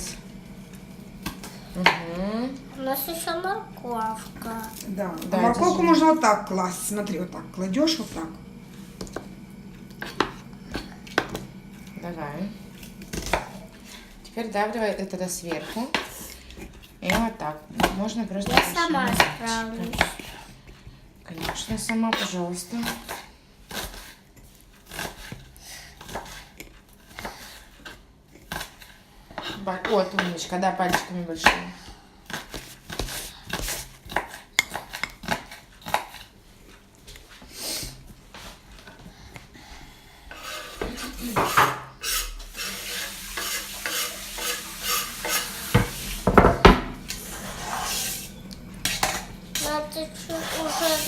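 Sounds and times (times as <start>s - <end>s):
utensil scraping against a dish: 26.0s - 30.5s, 40.2s - 51.0s.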